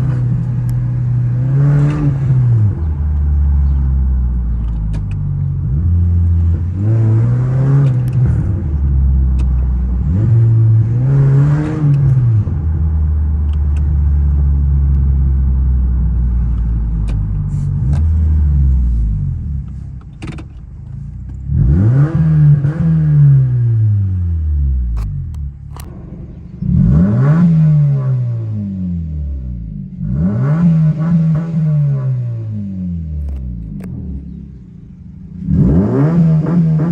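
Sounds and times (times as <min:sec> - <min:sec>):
car engine idling and revving: 0:00.0 - 0:36.9
exhaust pops: 0:24.9 - 0:29.1.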